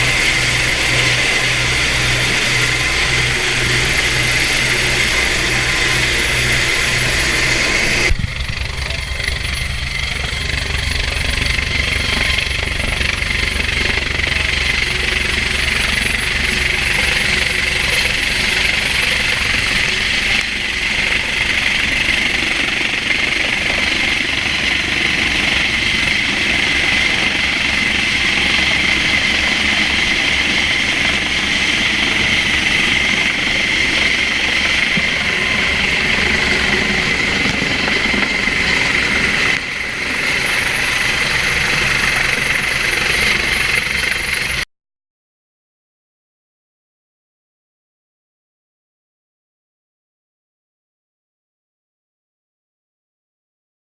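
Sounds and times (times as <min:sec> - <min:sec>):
helicopter rotor and engine: 0:00.0 - 0:44.7.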